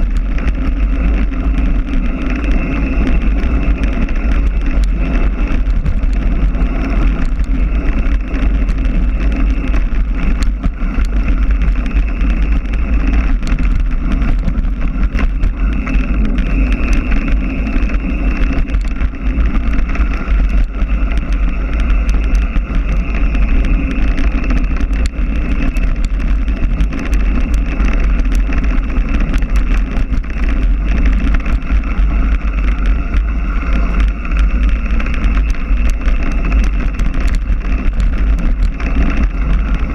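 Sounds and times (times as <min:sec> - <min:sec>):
bike clicks and knocks: 0:00.0 - 0:39.9
mountain bike rattling: 0:00.0 - 0:39.9
wind buffeting microphone: 0:00.0 - 0:39.9.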